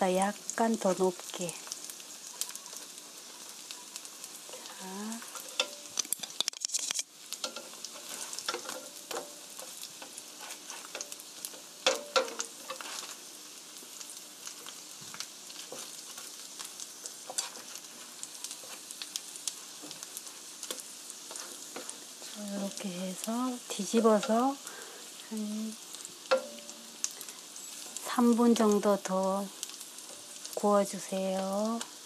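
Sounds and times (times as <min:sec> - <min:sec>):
food sizzling in oil: 0:00.0 - 0:32.0
utensils tapping a pan: 0:04.5 - 0:13.2, 0:17.0 - 0:18.8, 0:19.8 - 0:24.9, 0:26.2 - 0:27.1.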